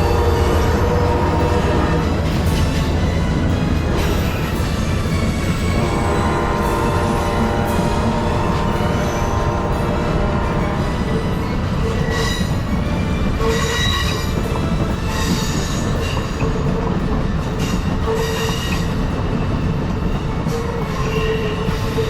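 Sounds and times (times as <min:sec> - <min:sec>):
high-pitched wheel squeals: 0:00.0 - 0:16.6
train wheels rumbling on rail: 0:00.0 - 0:22.0.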